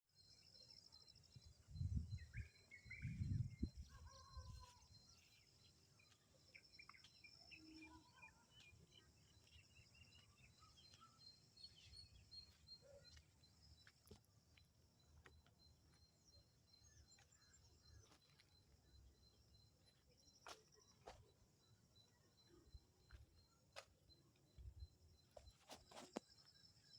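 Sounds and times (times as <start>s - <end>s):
faint bird chirps: 0.1s - 26.9s.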